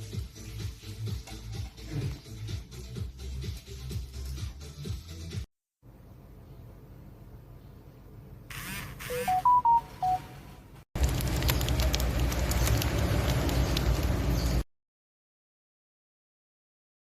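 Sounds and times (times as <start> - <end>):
appliance beeper tune: 9.0 - 10.5.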